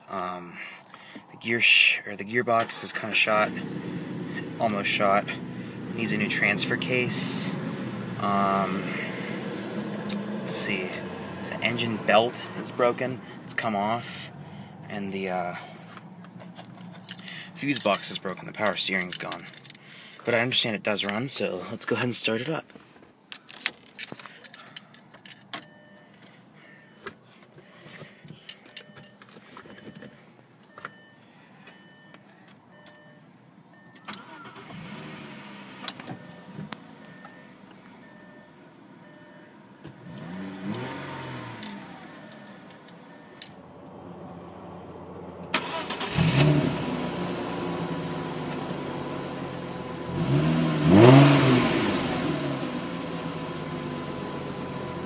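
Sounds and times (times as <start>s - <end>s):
car engine cranking and starting: 2.4s - 19.9s, 23.4s - 55.0s
car engine revving: 2.9s - 14.6s, 34.2s - 36.8s, 40.0s - 42.5s, 44.0s - 55.0s
car warning beeps: 25.5s - 43.6s, 45.6s - 46.6s
ignition clicks: 33.8s - 34.9s, 45.5s - 46.6s.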